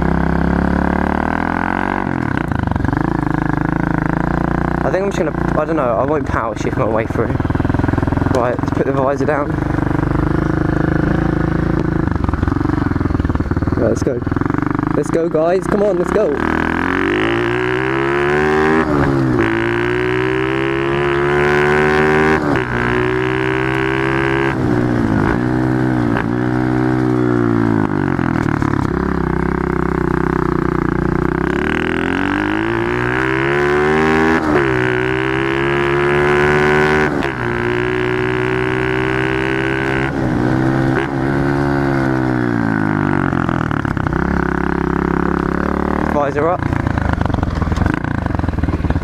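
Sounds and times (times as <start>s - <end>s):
pit bike engine revving: 0.0s - 49.0s.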